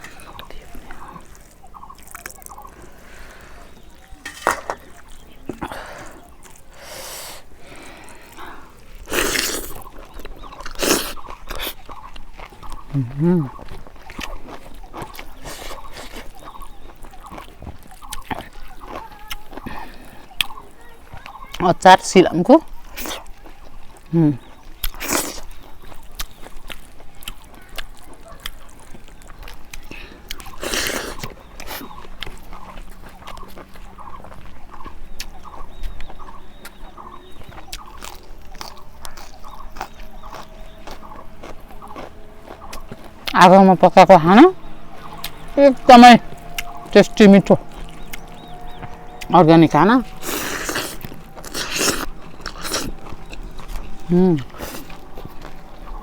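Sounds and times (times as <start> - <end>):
wet clicks and squishes of food: 0.0 - 3.0, 4.9 - 6.8, 9.6 - 21.7, 22.5 - 43.5, 44.6 - 49.3
chicken clucking: 0.0 - 6.8, 9.6 - 25.0, 25.7 - 56.0
faint animal calls: 0.0 - 21.9, 25.5 - 56.0
chewing: 0.0 - 56.0.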